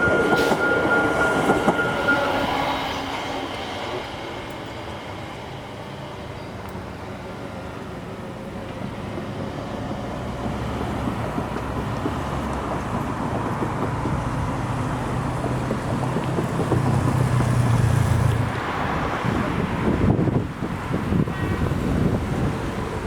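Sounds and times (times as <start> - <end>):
wind buffeting microphone: 10.4 - 23.0.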